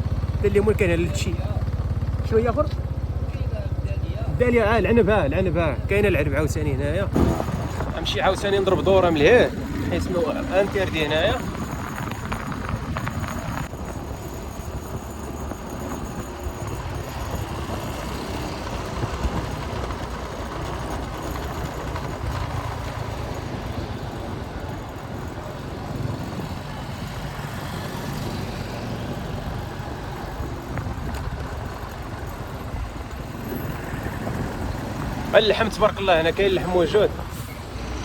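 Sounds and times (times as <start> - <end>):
road traffic passing: 0.0 - 38.0.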